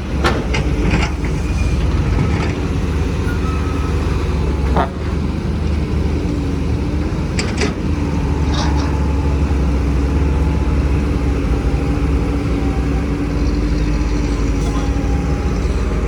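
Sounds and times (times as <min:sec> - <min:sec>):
diesel machinery rumbling: 0:00.0 - 0:16.0
high-pitched squeaks: 0:01.4 - 0:04.9.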